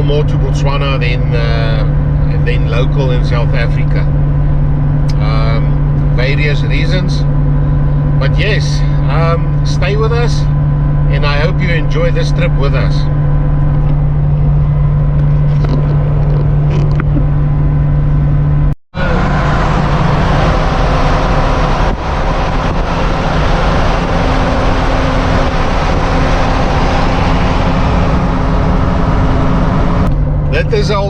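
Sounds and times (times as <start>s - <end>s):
vehicle engine hum: 0.0s - 31.0s
wind and tyre noise: 13.0s - 31.0s.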